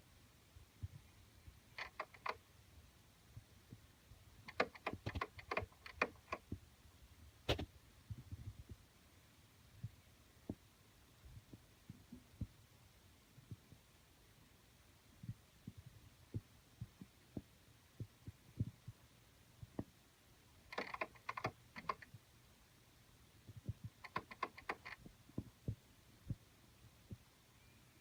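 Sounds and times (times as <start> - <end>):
quick scratching clicks: 1.7 - 2.4, 4.4 - 6.5, 20.7 - 22.1, 23.9 - 25.1.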